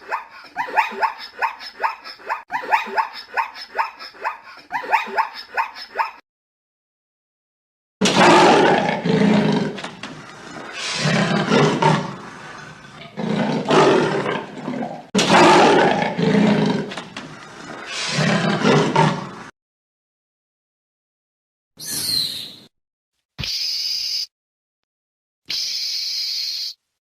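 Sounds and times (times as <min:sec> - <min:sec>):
big cat roaring: 0:08.0 - 0:17.0, 0:17.7 - 0:19.5.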